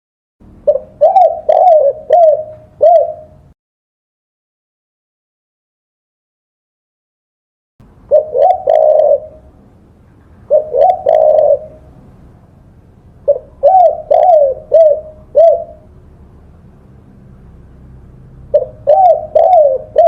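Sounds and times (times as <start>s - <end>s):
dove cooing: 0.6s - 3.5s, 8.1s - 9.5s, 10.4s - 12.0s, 13.2s - 15.9s, 18.5s - 20.0s
faint background hiss: 7.8s - 20.0s.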